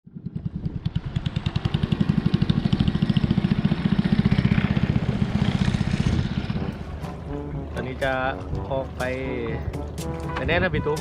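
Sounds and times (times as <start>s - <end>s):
boat motor throbbing: 0.1s - 11.0s.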